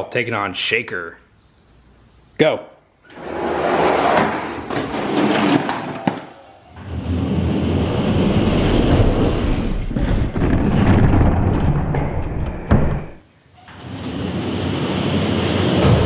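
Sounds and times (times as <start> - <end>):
toy trucks rolling on plastic track: 3.1 - 6.3.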